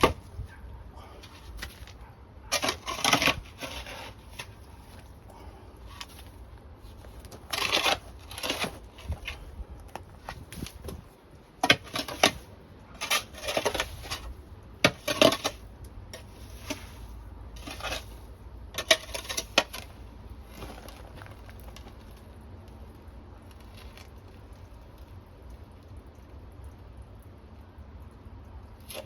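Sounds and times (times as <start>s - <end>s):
hard objects clattering and scraping: 0.0s - 0.4s, 1.0s - 22.4s.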